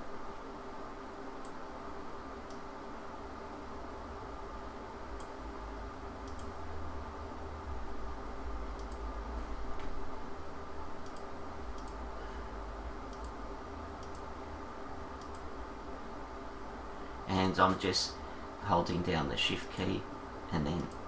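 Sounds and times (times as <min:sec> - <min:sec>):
steady low hum: 0:00.0 - 0:21.0
computer mouse clicks: 0:01.4 - 0:01.6, 0:02.4 - 0:02.7, 0:05.2 - 0:05.4, 0:06.2 - 0:06.6, 0:08.7 - 0:09.1, 0:11.0 - 0:12.1, 0:13.1 - 0:13.4, 0:14.0 - 0:14.3, 0:15.2 - 0:15.5, 0:20.8 - 0:21.0.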